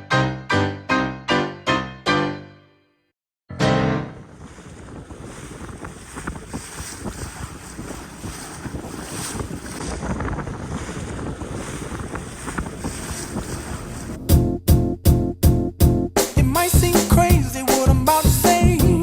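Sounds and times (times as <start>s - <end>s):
water splashing against boat: 4.2s - 14.4s
wind buffeting microphone: 4.2s - 14.4s
music with strong beat: 14.2s - 19.0s.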